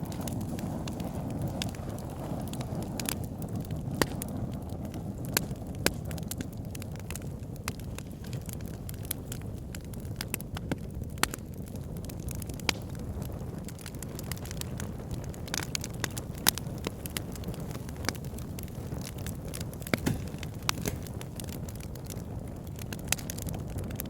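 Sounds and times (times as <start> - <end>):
burning wood crackling and popping: 0.0 - 24.0
campfire flames rumbling: 0.0 - 24.0.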